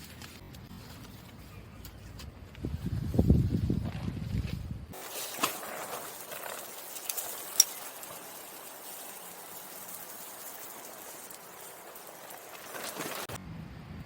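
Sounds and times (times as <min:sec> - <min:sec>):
wood fire crackling: 0:04.9 - 0:13.4.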